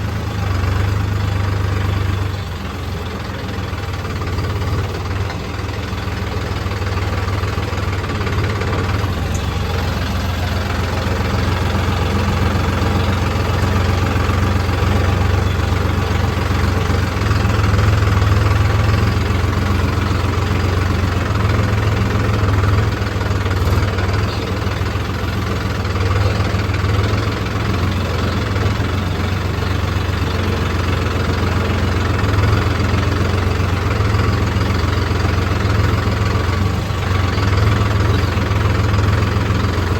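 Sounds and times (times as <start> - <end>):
diesel engine running at low revs: 0.0 - 39.9.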